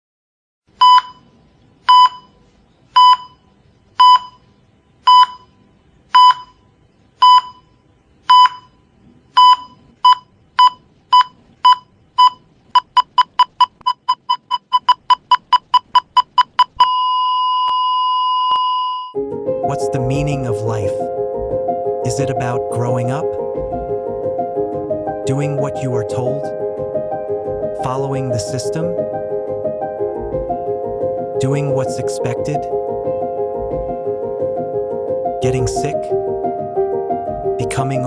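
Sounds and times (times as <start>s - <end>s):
heart-rate monitor beeping: 0.8s - 1.3s, 1.9s - 2.4s, 3.0s - 4.5s, 5.1s - 19.2s.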